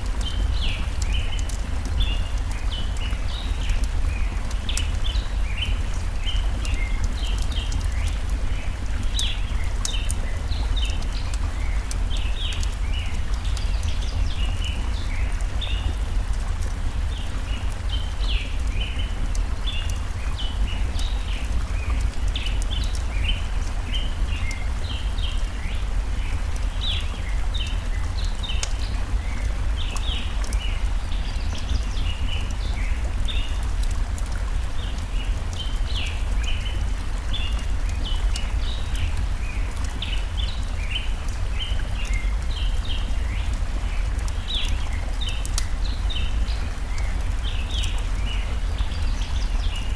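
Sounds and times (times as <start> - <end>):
stream water rushing: 0.0 - 49.9
wood fire crackling: 0.0 - 49.9.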